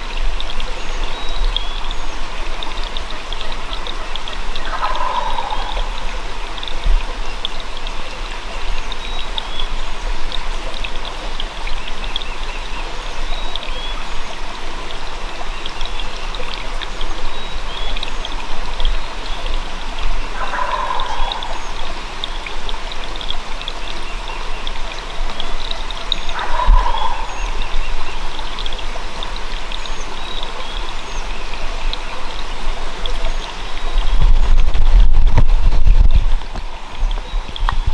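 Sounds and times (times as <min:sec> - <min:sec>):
running water rushing: 0:00.0 - 0:37.9
wild turkey gobbling: 0:03.0 - 0:06.7, 0:18.8 - 0:22.4, 0:25.4 - 0:30.5.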